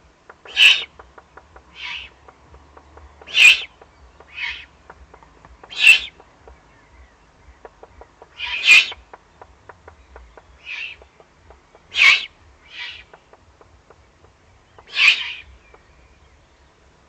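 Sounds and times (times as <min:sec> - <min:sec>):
faint clicks and ticks: 0:00.1 - 0:11.9, 0:13.1 - 0:14.9
owl chicks rasping begging calls: 0:00.1 - 0:16.9.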